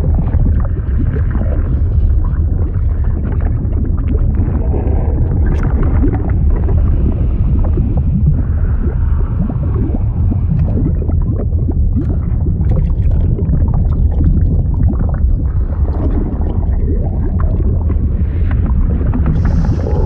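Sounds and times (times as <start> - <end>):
liquid bubbling and gurgling: 0.0 - 20.0.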